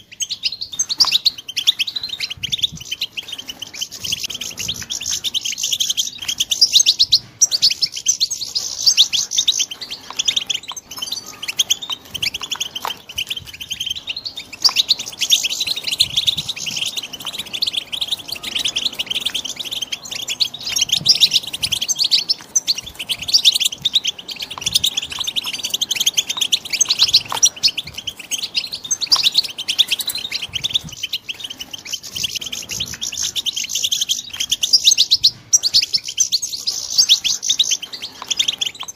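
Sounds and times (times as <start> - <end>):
goldfinches twittering: 0.0 - 38.9.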